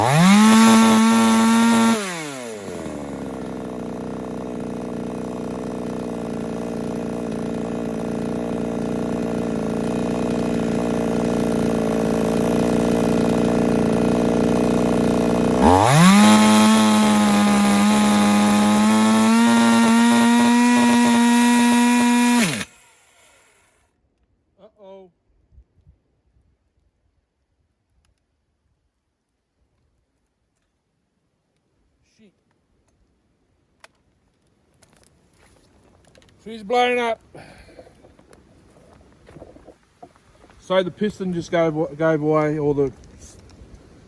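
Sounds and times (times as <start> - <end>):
chainsaw revving and idling: 0.0 - 23.8.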